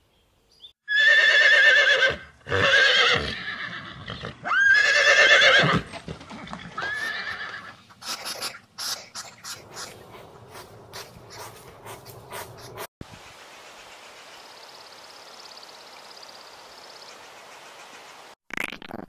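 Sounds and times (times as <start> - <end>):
horse whinnying: 0.9 - 7.8.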